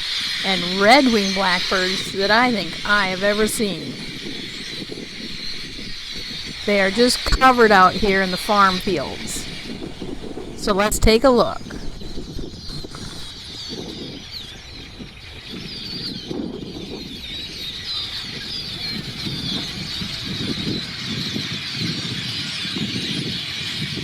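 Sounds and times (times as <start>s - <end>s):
blackbird flock chattering: 0.1s - 13.3s.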